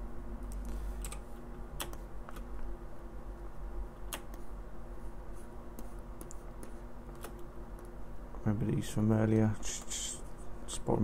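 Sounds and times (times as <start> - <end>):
steady low hum: 0.0 - 11.0
computer mouse clicks: 5.8 - 8.0.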